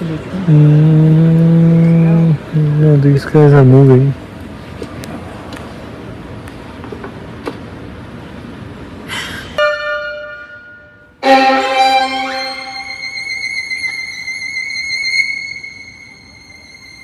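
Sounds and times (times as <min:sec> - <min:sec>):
violin holding high note: 0:09.6 - 0:17.0
orchestral film music: 0:11.2 - 0:17.0.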